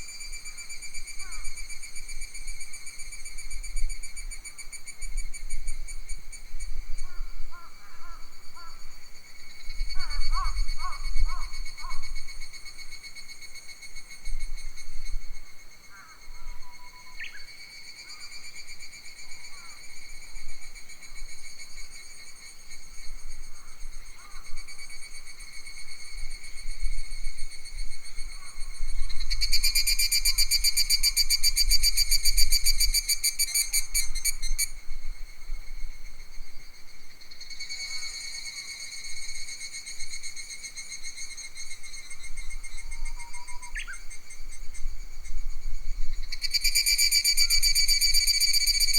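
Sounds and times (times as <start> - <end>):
insect chorus buzzing: 0.0 - 48.9
wind rumble on microphone: 42.1 - 46.5.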